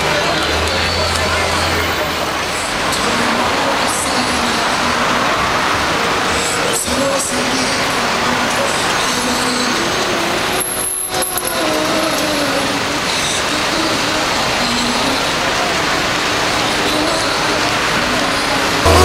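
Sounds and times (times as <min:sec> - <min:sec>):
road traffic noise: 0:00.0 - 0:19.0
faint wavering voice or melody: 0:00.7 - 0:15.4.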